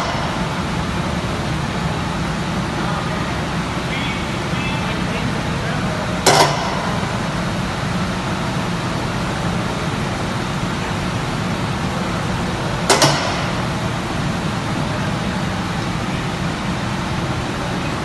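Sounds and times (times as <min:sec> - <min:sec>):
machinery hum: 0:00.0 - 0:18.0
sharp metallic clank: 0:12.9 - 0:13.7.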